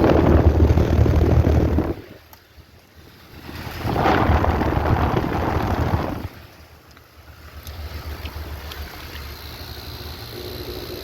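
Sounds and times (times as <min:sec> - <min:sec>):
wind buffeting microphone: 0:00.0 - 0:02.2, 0:03.0 - 0:06.6
air conditioner humming: 0:00.0 - 0:11.0.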